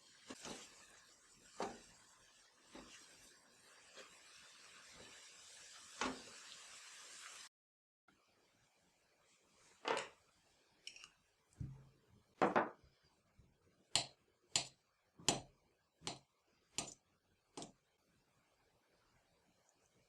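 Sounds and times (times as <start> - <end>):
knocks on a work surface: 12.4 - 12.8.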